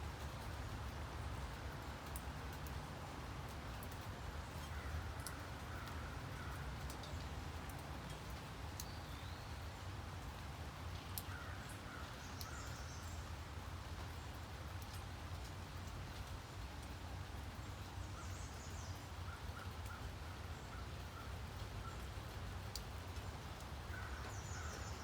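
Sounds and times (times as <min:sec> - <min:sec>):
steady rain: 0:00.0 - 0:25.0
sharp drip ticks: 0:00.1 - 0:25.0
faint bird calls: 0:23.9 - 0:25.0.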